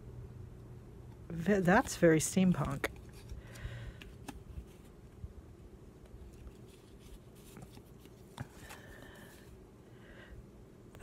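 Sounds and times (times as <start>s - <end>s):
low room hum: 0.0s - 11.0s
soft taps and paper rustles: 6.0s - 8.9s.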